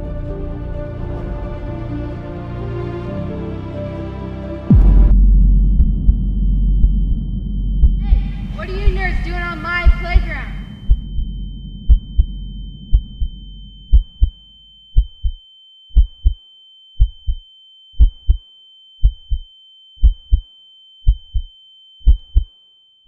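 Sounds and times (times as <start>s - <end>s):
low drone: 0.0s - 14.6s
heartbeat double thump: 4.7s - 16.4s, 17.0s - 18.4s, 19.0s - 22.5s
high-pitched ringing tone: 5.9s - 23.0s.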